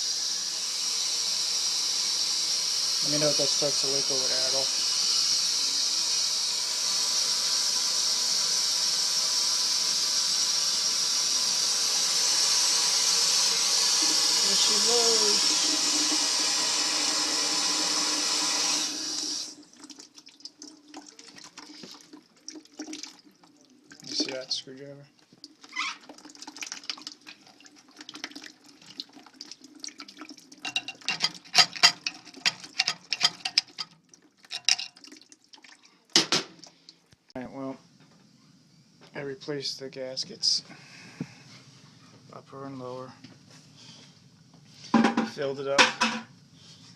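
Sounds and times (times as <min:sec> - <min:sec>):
water hissing through piping: 0:00.0 - 0:19.7.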